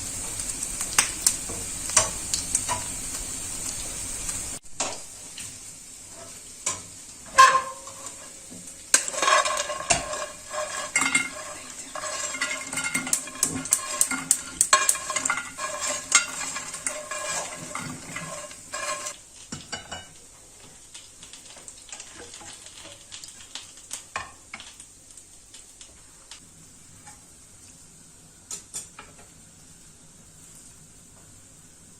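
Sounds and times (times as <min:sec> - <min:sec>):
food sizzling in a pan: 0:00.0 - 0:31.9
utensil scraping a pan: 0:06.1 - 0:19.2.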